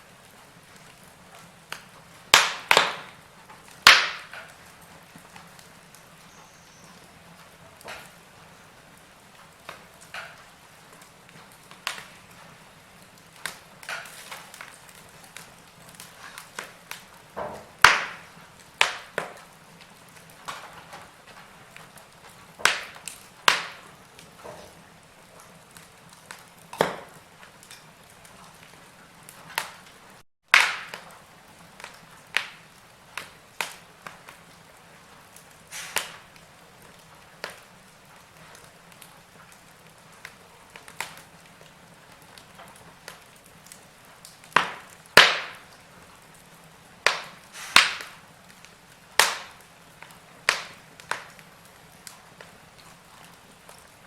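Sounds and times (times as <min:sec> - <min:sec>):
log fire crackling: 0:00.0 - 0:54.0
faint hiss: 0:04.1 - 0:21.7, 0:32.0 - 0:36.5, 0:46.7 - 0:52.7.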